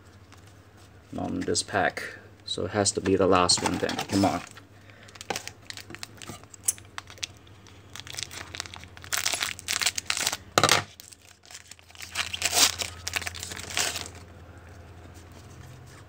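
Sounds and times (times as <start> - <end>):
foil wrapper tearing and crinkling: 4.1 - 14.2.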